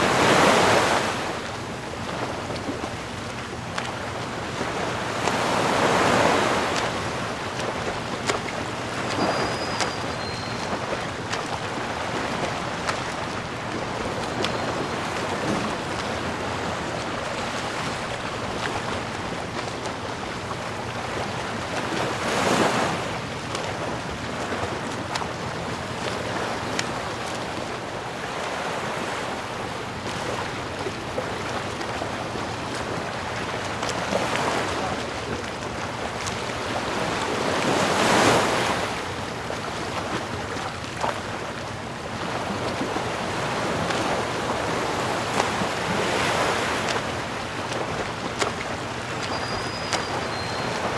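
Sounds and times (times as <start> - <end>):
ocean waves breaking on shore: 0.0 - 50.9.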